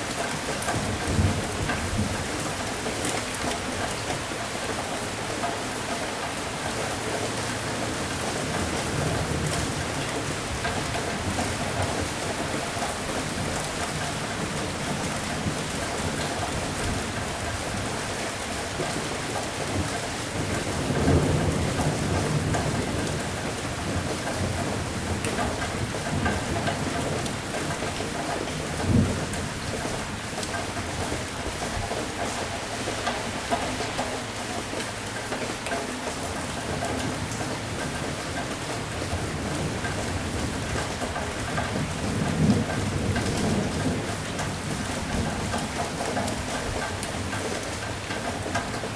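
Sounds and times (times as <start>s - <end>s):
heavy rain falling: 0.0s - 48.9s
low rumble of thunder: 0.3s - 3.0s, 18.8s - 32.4s, 38.8s - 47.2s
low roll of thunder: 20.4s - 27.8s.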